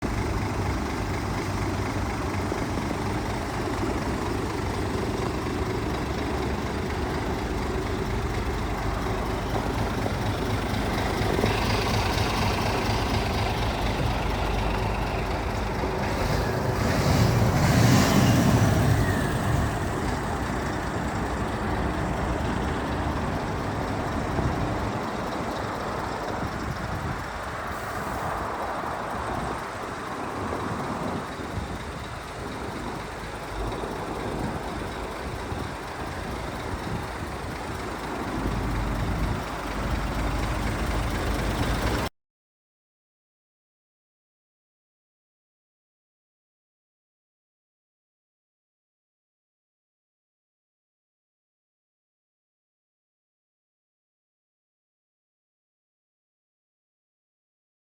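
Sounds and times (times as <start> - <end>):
truck diesel engine running: 0.0 - 42.1.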